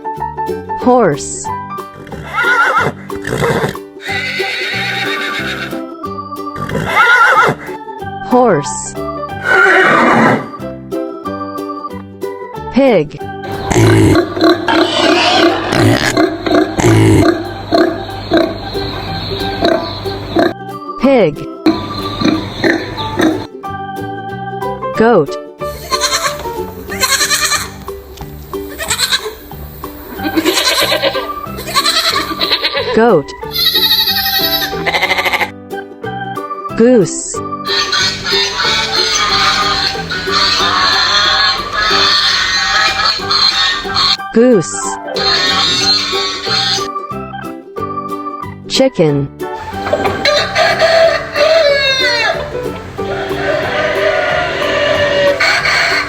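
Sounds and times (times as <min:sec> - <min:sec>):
light background music: 0:00.0 - 0:56.0
horse whinnying: 0:02.1 - 0:05.8, 0:06.6 - 0:07.8, 0:09.4 - 0:10.6, 0:13.5 - 0:18.5, 0:30.2 - 0:35.5, 0:49.6 - 0:56.0
goat bleating: 0:04.0 - 0:05.7, 0:13.5 - 0:20.5, 0:25.7 - 0:27.8, 0:28.7 - 0:29.4, 0:30.2 - 0:35.5, 0:37.7 - 0:44.2, 0:45.2 - 0:46.9, 0:49.6 - 0:56.0.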